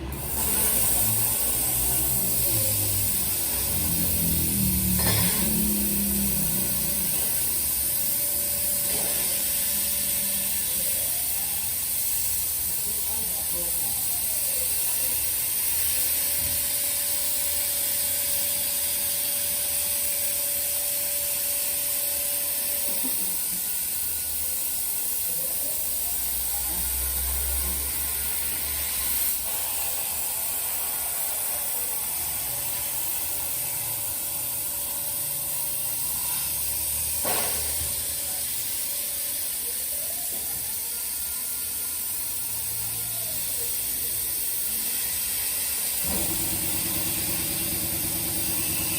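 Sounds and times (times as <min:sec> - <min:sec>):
plasma torch hiss: 0:00.0 - 0:48.9.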